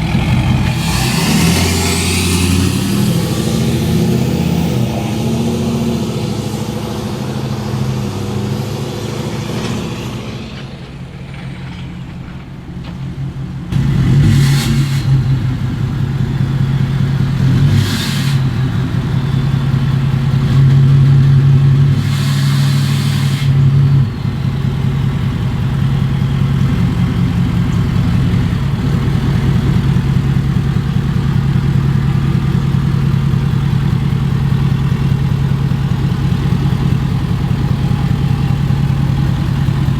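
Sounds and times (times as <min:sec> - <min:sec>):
diesel truck engine running: 0:00.0 - 0:39.9
short hiss bursts: 0:22.0 - 0:23.5.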